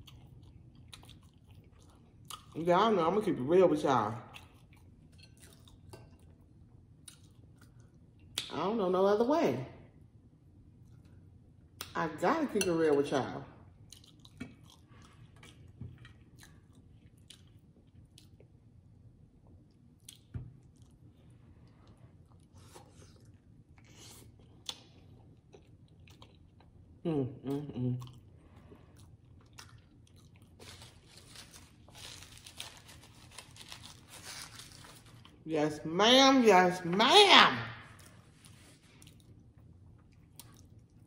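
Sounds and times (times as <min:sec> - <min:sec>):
close chewing and mouth sounds: 0:00.0 - 0:02.6, 0:04.1 - 0:08.5, 0:13.7 - 0:35.4, 0:38.0 - 0:41.0
paper napkin rustling: 0:30.6 - 0:35.2.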